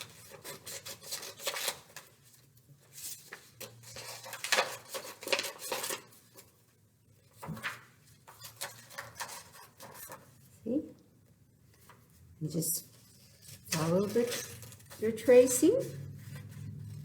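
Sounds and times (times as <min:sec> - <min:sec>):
scissors snipping paper: 0:00.0 - 0:02.1
paper rustling: 0:00.0 - 0:10.6, 0:11.6 - 0:17.0.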